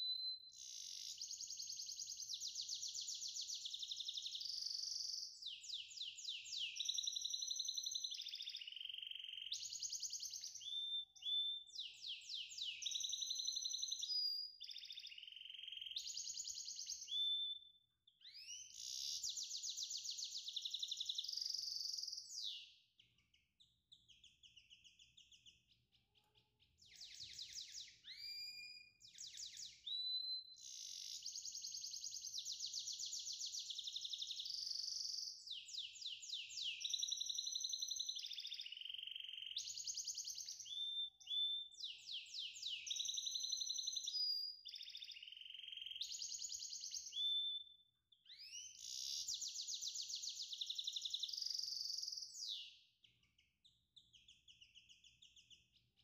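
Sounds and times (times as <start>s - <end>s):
bird song trills and whistles: 0.0s - 56.0s.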